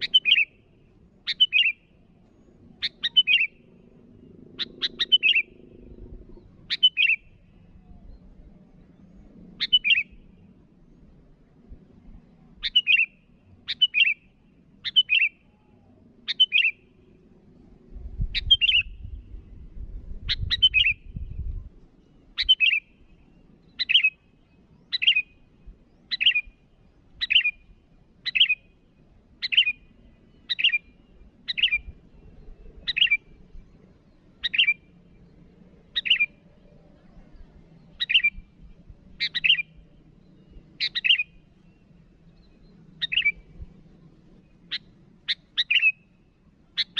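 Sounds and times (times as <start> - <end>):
bird giving sharp calls: 4.6 - 5.6, 6.7 - 7.3, 27.2 - 27.6, 39.2 - 39.8, 40.8 - 41.4, 43.0 - 43.5, 44.7 - 46.0.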